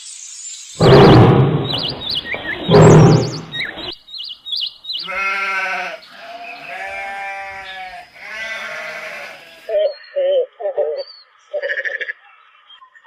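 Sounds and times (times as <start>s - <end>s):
rough noise bursts with chirps: 0.0s - 4.0s
livestock bleating: 5.0s - 9.8s.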